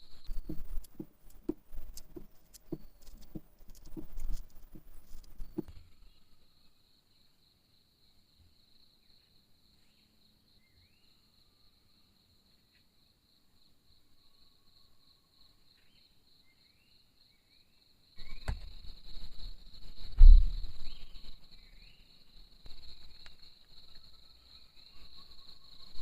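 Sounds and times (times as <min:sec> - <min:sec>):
rustling: 0:00.0 - 0:05.9
crickets trilling: 0:00.0 - 0:26.0.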